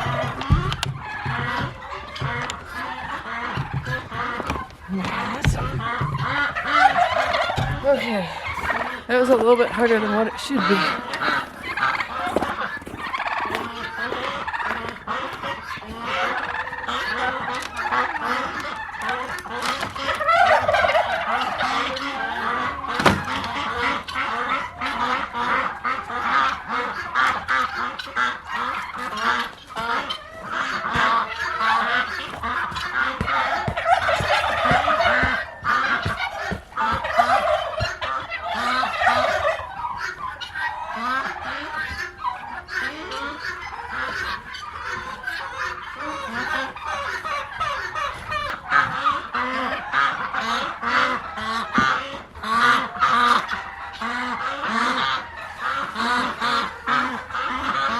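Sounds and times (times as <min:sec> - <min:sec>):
short knocks and thumps: 0:00.0 - 0:06.6, 0:31.8 - 0:38.4
chickens calling: 0:00.0 - 0:57.9
ducks and guinea fowl honking: 0:00.0 - 0:57.9
turkeys gobbling: 0:00.0 - 0:57.9.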